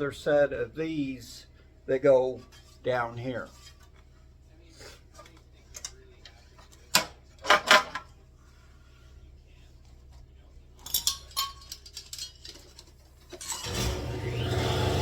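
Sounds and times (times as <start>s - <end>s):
metal tools clanking on workbench: 6.6s - 8.1s, 10.8s - 13.7s.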